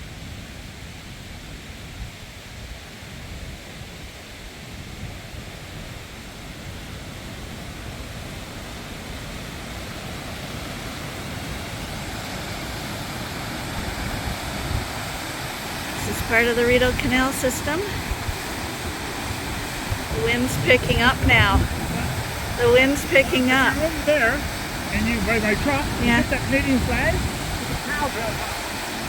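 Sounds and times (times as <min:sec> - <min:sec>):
gusty wind on microphone: 0:13.6 - 0:29.0.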